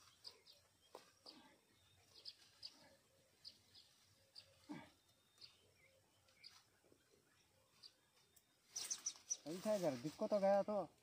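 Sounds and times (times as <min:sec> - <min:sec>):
high bird chirps: 0:03.4 - 0:09.6.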